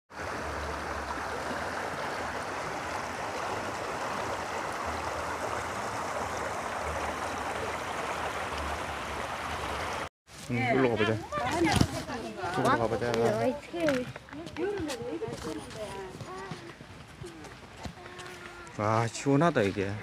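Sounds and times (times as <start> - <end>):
stream water rushing: 0.1 - 13.9.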